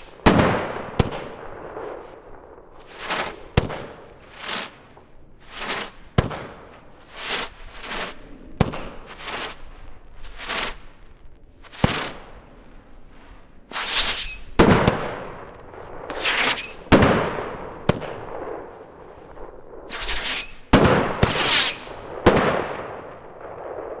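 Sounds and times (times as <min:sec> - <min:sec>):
firework shot whistling: 0:00.0 - 0:00.3, 0:05.4 - 0:06.0, 0:11.6 - 0:12.3, 0:13.7 - 0:15.4, 0:16.0 - 0:18.1, 0:19.8 - 0:22.5
sharp crack: 0:00.0 - 0:24.0.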